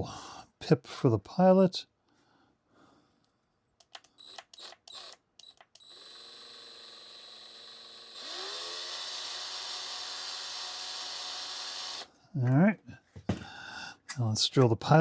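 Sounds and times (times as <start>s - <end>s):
small electric drill drilling: 4.1s - 12.1s.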